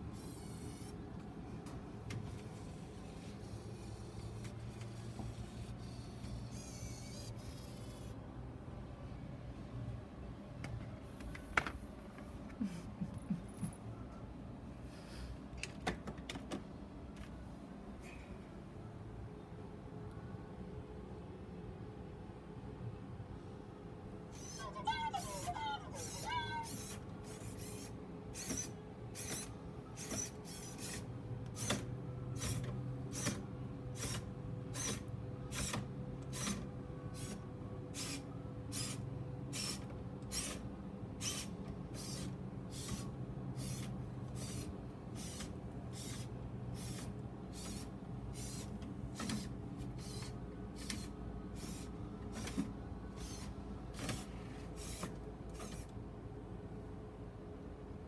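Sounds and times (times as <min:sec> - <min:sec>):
toy robot motor hum: 0:00.1 - 0:01.0, 0:02.5 - 0:08.2, 0:24.3 - 0:40.6, 0:41.2 - 0:52.6, 0:53.2 - 0:55.9.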